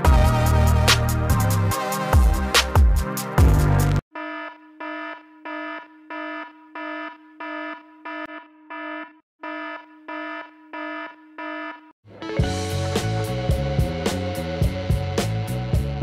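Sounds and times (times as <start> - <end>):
electronic alarm beeping: 4.1 - 12.0.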